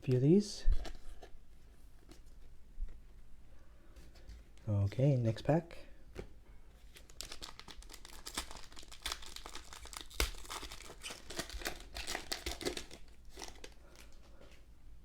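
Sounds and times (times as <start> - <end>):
wrapper tearing and crinkling: 6.9 - 14.2.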